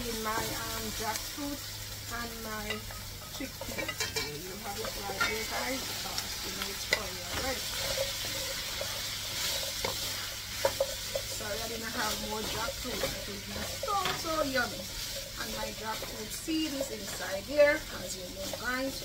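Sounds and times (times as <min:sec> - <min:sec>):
food sizzling in oil: 0:00.0 - 0:19.0
wooden spatula scraping pot: 0:02.6 - 0:19.0.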